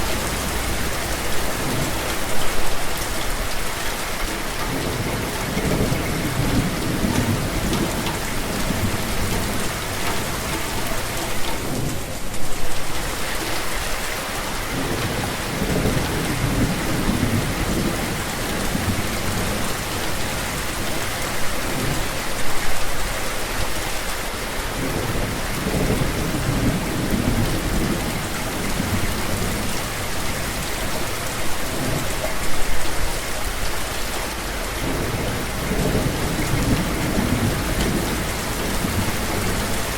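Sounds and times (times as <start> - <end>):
thunder rumbling: 0.0 - 13.4, 14.7 - 20.8, 34.8 - 39.9
heavy rain hissing: 0.0 - 39.9.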